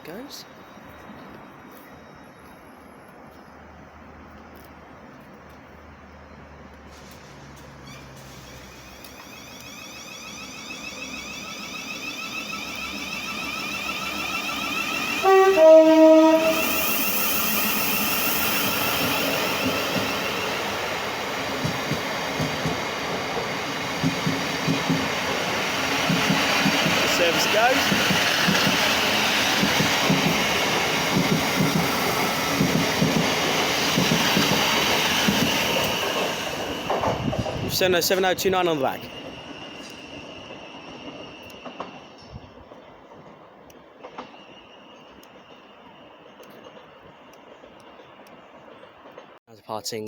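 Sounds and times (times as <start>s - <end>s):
train rail noise: 0.0s - 49.4s
two-tone train horn: 15.1s - 16.8s.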